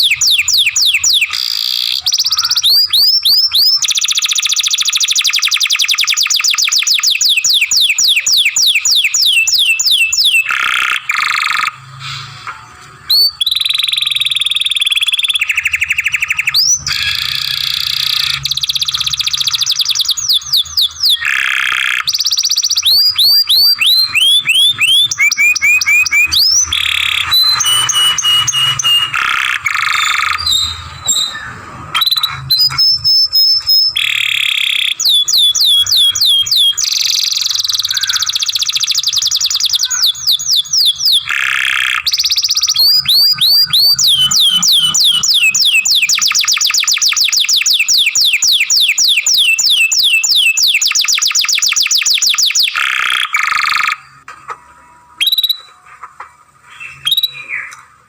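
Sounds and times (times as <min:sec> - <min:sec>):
canary singing trills: 0:00.0 - 0:12.4, 0:13.0 - 0:55.9, 0:56.6 - 0:57.8.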